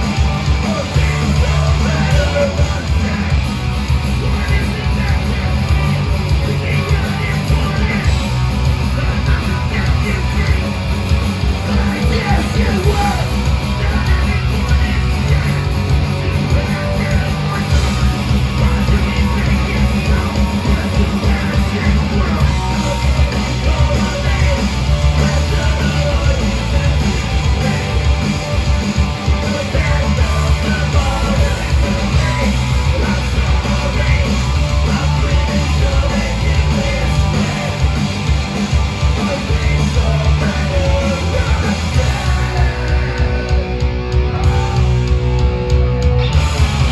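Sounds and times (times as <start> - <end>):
punk rock band playing: 0.0 - 46.9
shouted vocals: 11.5 - 45.1.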